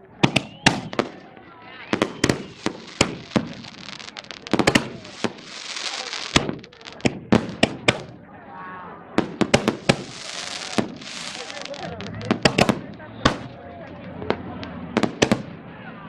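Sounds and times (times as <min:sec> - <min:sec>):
fireworks bangs: 0:00.0 - 0:08.3, 0:09.1 - 0:15.7
hissing crackle: 0:01.9 - 0:08.2, 0:09.2 - 0:15.4.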